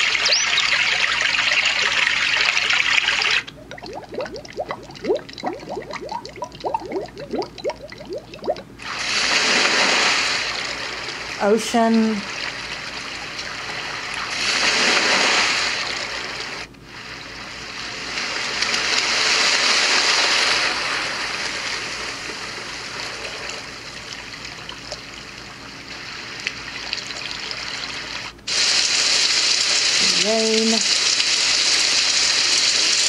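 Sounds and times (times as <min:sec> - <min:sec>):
recorded ocean waves hiss: 0:03.3 - 0:24.0, 0:25.0 - 0:32.9.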